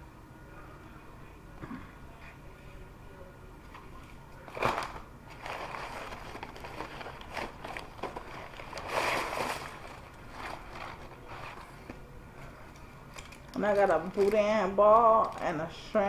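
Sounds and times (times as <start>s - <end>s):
food packaging rustling and crinkling: 4.5s - 16.0s.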